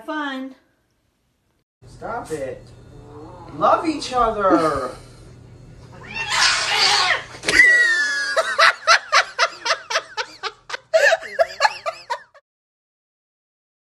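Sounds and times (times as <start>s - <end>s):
person crying out: 6.1s - 8.4s
person laughing: 7.6s - 12.4s.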